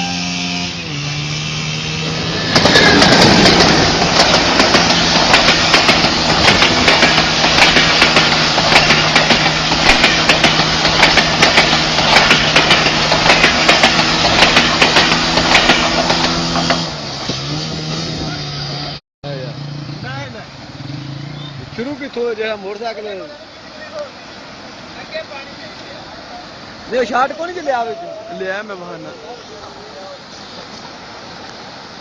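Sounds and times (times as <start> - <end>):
loud rushing noise with clatter: 2.2 - 18.1.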